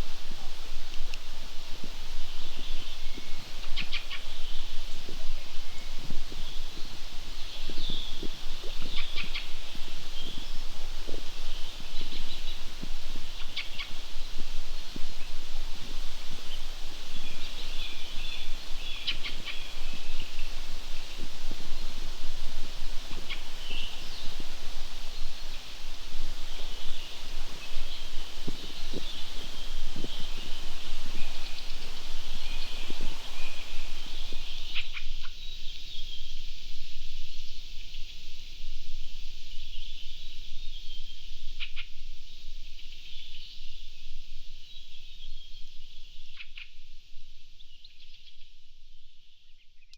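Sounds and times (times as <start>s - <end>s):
outdoor background noise: 0.0s - 49.9s
small birds chirping: 2.4s - 36.5s
small birds chirping and trilling: 23.0s - 36.3s.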